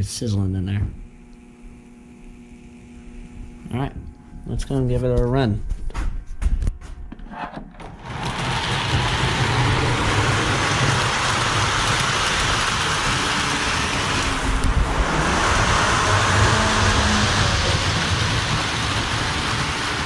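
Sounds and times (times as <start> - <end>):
model locomotive hissing rush: 8.0 - 20.0
low hum: 9.0 - 20.0.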